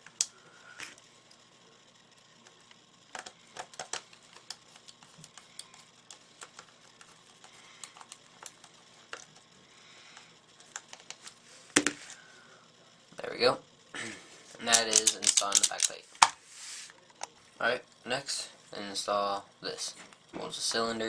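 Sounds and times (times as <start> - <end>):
screw clicking into plastic: 14.7 - 16.0
plastic parts handled: 14.7 - 16.4.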